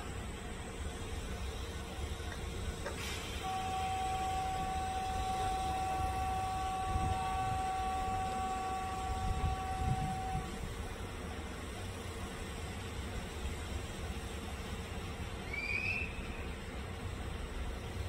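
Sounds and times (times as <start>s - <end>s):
train rumbling on track: 0.0s - 18.0s.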